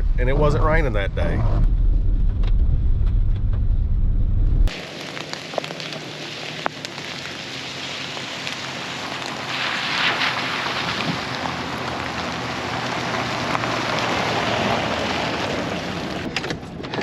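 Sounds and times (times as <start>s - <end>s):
truck road rumble in cab: 0.0s - 17.0s
rain falling: 4.7s - 16.3s
raindrops ticking: 4.7s - 16.3s.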